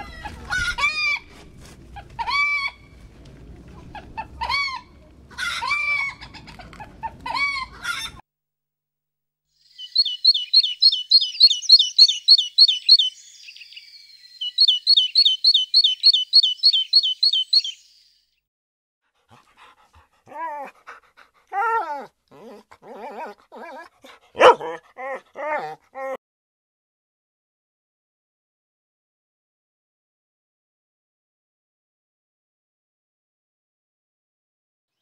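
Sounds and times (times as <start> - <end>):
high animal chirps: 9.8 - 13.7, 14.4 - 17.8
whining animal yelps: 21.5 - 26.2.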